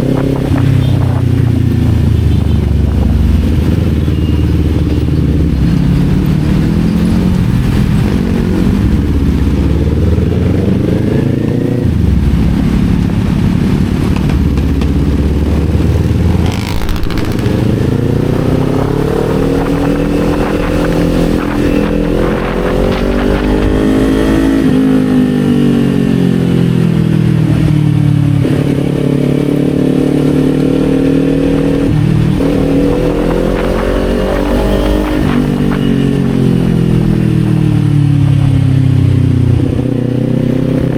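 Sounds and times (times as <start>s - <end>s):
motorcycle engine revving: 0.0s - 40.9s
gear shifts: 14.1s - 24.9s.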